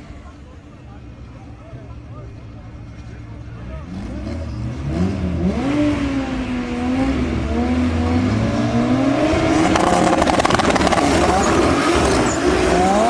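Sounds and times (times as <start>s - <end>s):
car engine accelerating: 2.1s - 13.0s
exhaust crackle: 9.3s - 13.0s.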